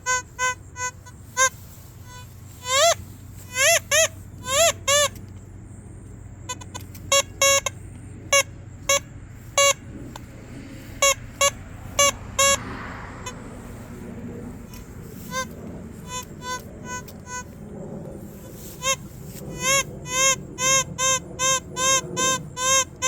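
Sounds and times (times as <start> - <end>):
metal detector beeps: 0.0 - 5.2, 6.5 - 13.4, 14.7 - 17.6, 18.5 - 23.0.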